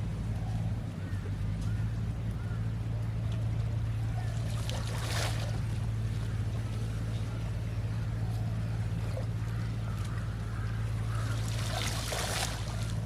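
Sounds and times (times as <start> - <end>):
faint water: 0.0 - 13.0
steady low hum: 0.0 - 13.0
water splash: 4.3 - 6.0, 11.0 - 13.0.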